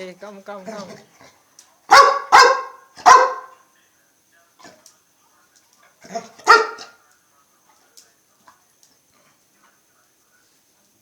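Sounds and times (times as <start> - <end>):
dog barking: 1.9 - 3.6, 6.0 - 7.0.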